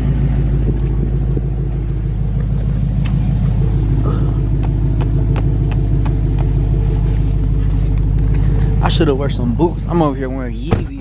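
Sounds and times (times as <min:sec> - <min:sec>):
car engine idling with deep rumble: 0:00.0 - 0:11.0.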